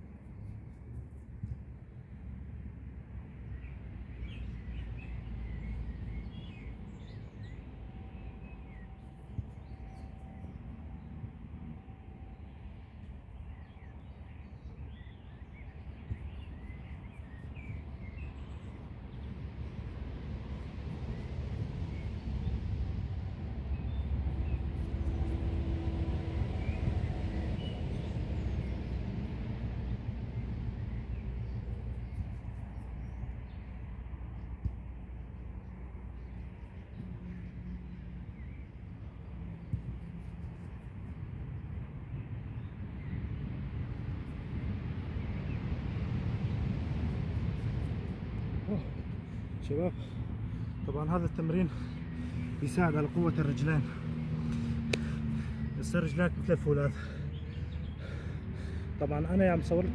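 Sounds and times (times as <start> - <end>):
low wind rumble: 0.0 - 59.9
small birds chirping: 47.1 - 59.9.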